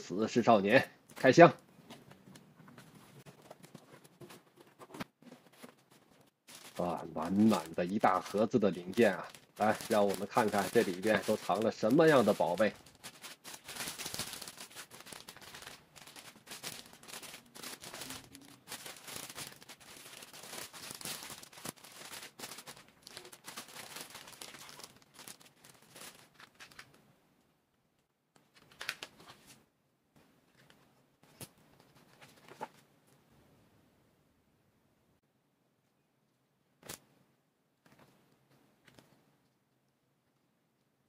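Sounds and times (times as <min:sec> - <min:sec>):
packaging crinkling and rustling: 0:01.9 - 0:27.0.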